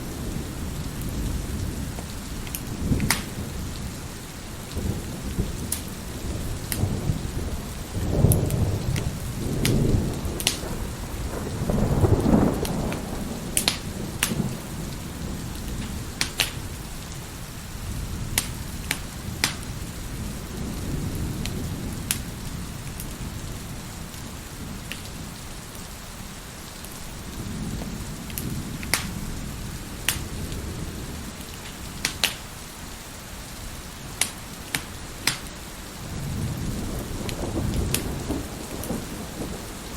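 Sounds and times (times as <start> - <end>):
wood fire crackling: 0.0 - 20.6, 26.7 - 39.9
rolling thunder: 0.0 - 25.4, 34.0 - 39.9
steady rain: 0.0 - 39.9.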